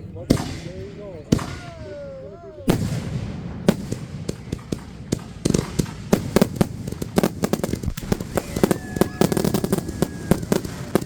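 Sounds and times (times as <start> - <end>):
fireworks cracking and popping: 2.7 - 11.0.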